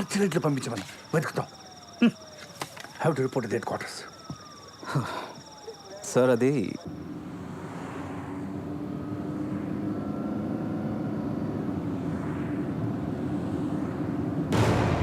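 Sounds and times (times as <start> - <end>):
vehicle engine droning: 6.0 - 14.8
sudden loud hit: 14.5 - 15.0.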